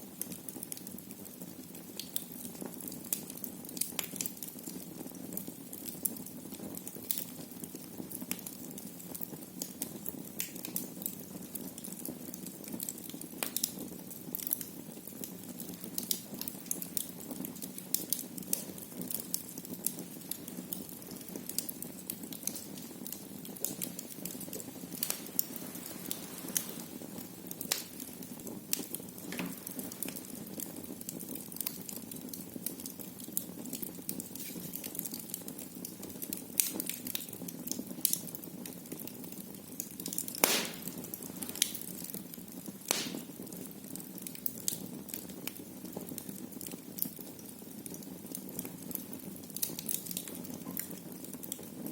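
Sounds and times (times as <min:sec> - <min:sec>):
wood fire crackling: 0:00.0 - 0:51.9
steady low hiss: 0:16.5 - 0:32.0, 0:39.8 - 0:43.8
sharp pops: 0:27.7 - 0:28.0, 0:40.3 - 0:41.8, 0:42.9 - 0:43.4.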